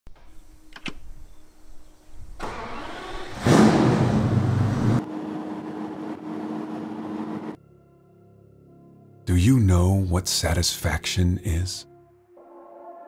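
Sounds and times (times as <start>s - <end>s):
car engine starting and idling: 2.4s - 7.6s.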